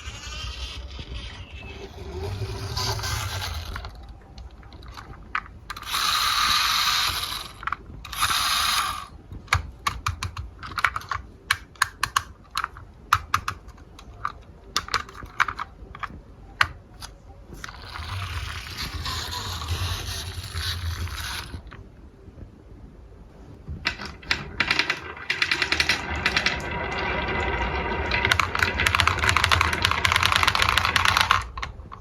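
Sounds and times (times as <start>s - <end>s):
marbles rolling on wooden track: 0.0s - 11.2s, 17.6s - 21.8s, 23.8s - 32.0s
marbles clicking and clacking: 0.0s - 16.1s, 17.6s - 21.7s, 23.8s - 32.0s.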